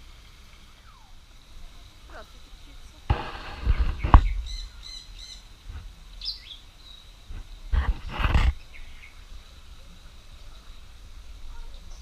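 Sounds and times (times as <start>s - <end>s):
birds chirping: 2.1s - 5.5s, 6.1s - 7.2s
harsh bird calls: 3.1s - 5.5s.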